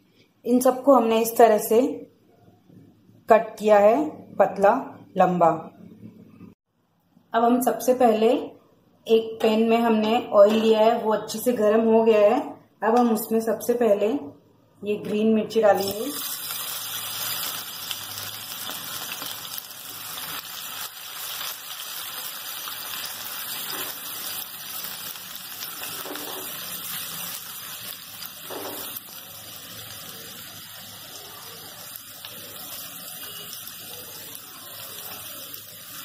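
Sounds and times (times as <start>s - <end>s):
chillies sizzling in hot oil: 15.6s - 36.0s.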